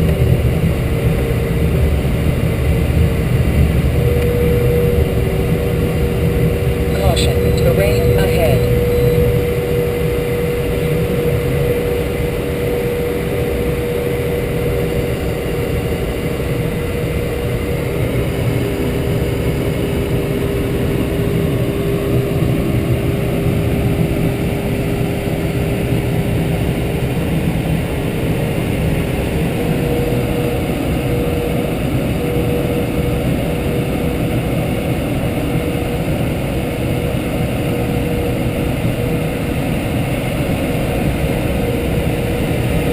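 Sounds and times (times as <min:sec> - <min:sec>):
light aircraft engine droning: 0:00.0 - 0:42.9.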